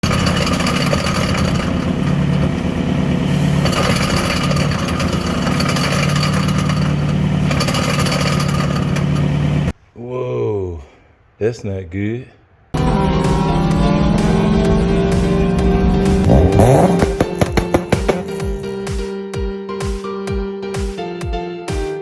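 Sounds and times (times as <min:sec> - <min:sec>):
car engine droning: 0:00.0 - 0:09.7, 0:12.8 - 0:18.9.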